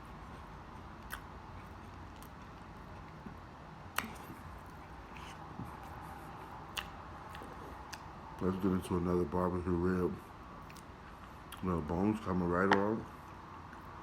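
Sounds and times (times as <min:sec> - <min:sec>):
quiet chewing: 0:00.0 - 0:08.5, 0:10.6 - 0:11.8
steady low hum: 0:00.0 - 0:14.0
sharp mouth clicks: 0:04.0 - 0:04.5, 0:06.7 - 0:08.1.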